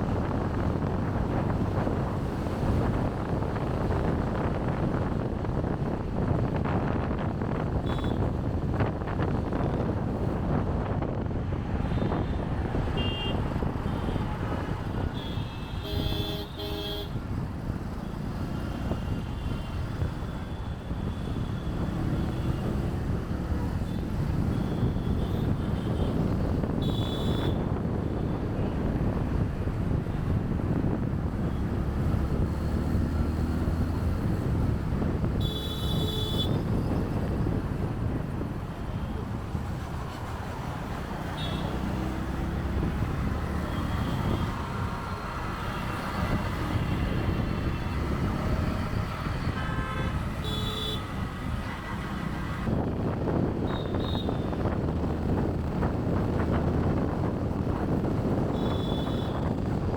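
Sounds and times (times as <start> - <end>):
traffic engines and road noise: 0.0 - 59.9
vehicle horns honking: 7.8 - 8.3, 13.0 - 14.3, 15.0 - 17.2, 26.8 - 27.7, 35.4 - 36.8, 41.3 - 41.8, 45.7 - 52.1, 53.6 - 54.6, 58.5 - 59.6.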